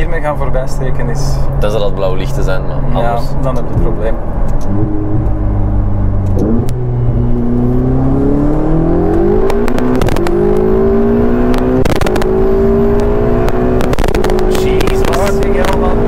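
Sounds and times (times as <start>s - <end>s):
car engine accelerating hard: 0.0s - 16.0s
gear upshifts: 3.4s - 16.0s.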